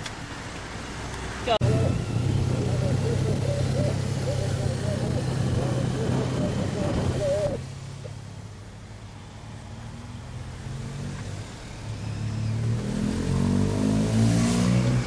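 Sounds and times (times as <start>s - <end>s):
car engine accelerating: 1.5s - 7.7s, 9.9s - 15.0s.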